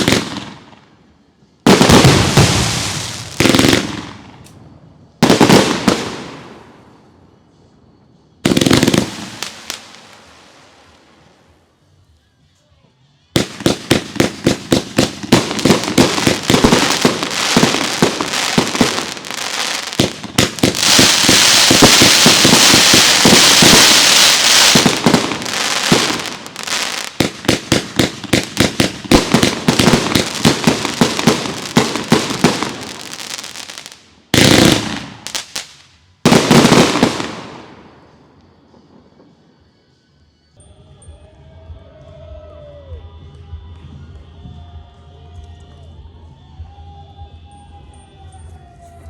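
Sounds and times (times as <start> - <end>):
fireworks bangs and crackles: 0.0 - 11.6, 13.3 - 40.0.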